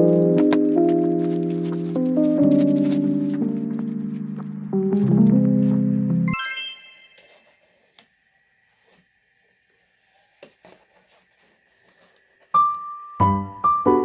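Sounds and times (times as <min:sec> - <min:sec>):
piano music: 0:00.0 - 0:07.4, 0:12.6 - 0:14.0
high chime: 0:06.3 - 0:07.6.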